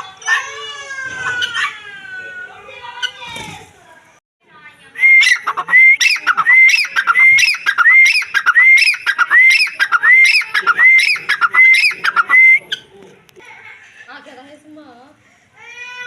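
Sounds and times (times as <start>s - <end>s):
francolin calling: 5.0s - 12.9s.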